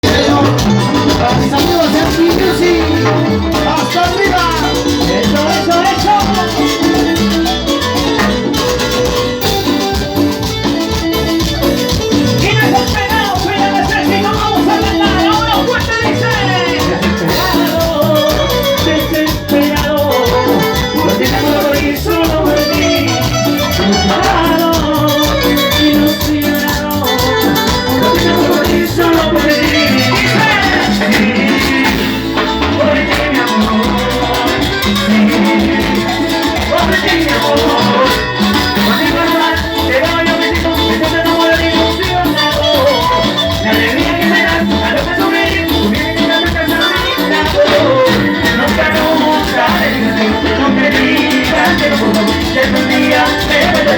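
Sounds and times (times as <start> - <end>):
live band playing latin dance music: 0.0 - 53.9.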